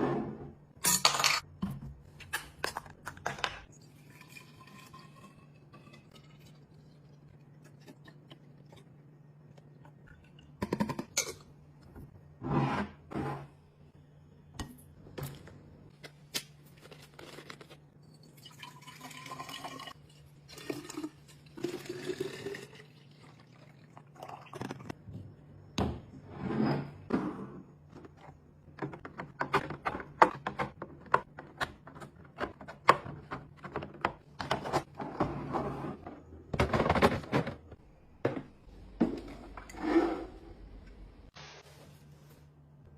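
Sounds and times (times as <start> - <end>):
liquid pouring into container: 18.2 - 24.6.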